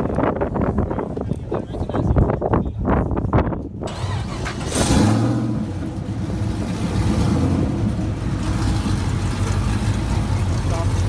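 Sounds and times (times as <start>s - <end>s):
car engine revving: 3.9s - 11.0s.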